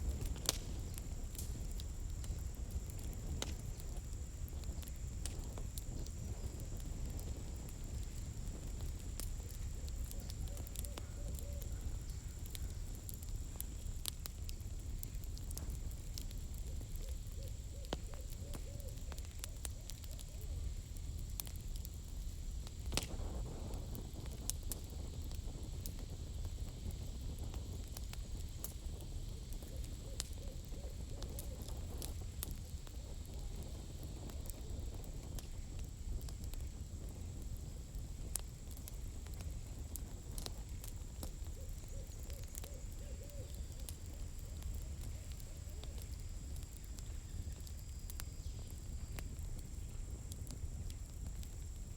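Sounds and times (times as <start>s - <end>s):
campfire crackling and popping: 0.0s - 51.9s
owl hooting: 10.5s - 11.8s, 41.6s - 44.2s.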